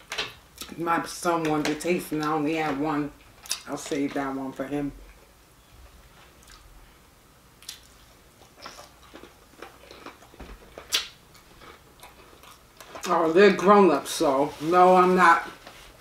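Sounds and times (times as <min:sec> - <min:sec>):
person chewing food: 0:06.3 - 0:06.7, 0:07.6 - 0:13.1.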